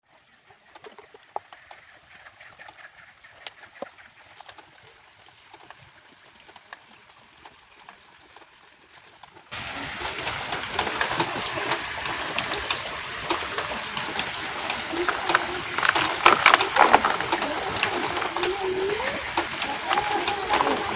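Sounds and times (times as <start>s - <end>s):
rain hiss: 9.5s - 20.9s.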